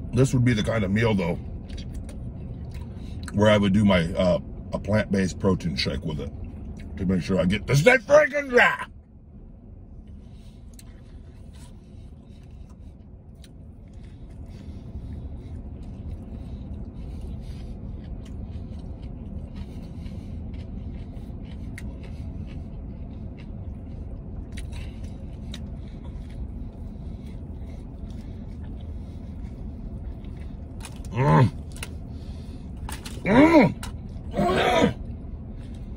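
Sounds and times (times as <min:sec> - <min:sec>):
low vehicle rumble: 0:00.0 - 0:35.9
man chewing crunchy food: 0:00.6 - 0:03.4, 0:10.0 - 0:35.9.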